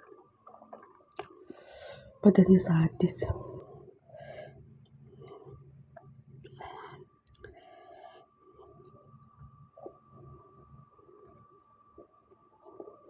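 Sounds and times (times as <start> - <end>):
person chewing food: 7.2 - 7.6.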